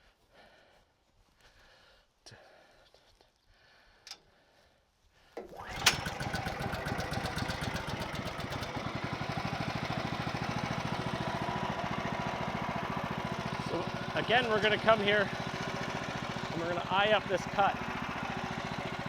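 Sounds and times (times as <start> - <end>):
engine starting with a bang: 5.6 - 8.2
engine running steadily: 5.6 - 19.0.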